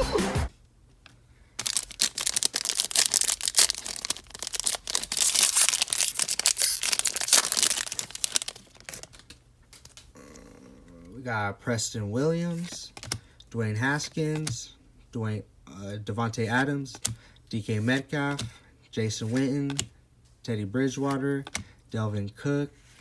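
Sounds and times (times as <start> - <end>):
foil wrapper tearing and crinkling: 1.6 - 9.2.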